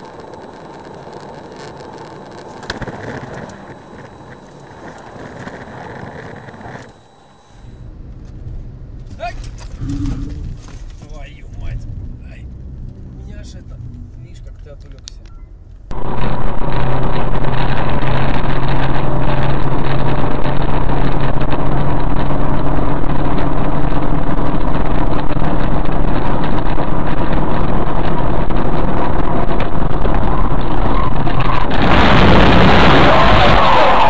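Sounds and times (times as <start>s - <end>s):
vehicle engine running: 2.2s - 34.0s
harsh noise: 30.2s - 34.0s.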